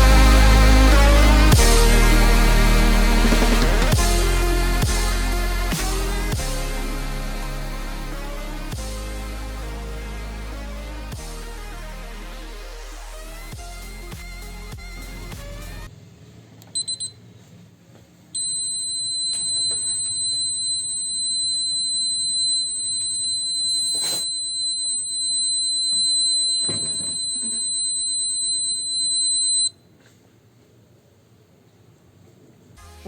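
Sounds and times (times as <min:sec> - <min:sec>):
alarm buzzer chirps and tone: 0:18.4 - 0:29.8.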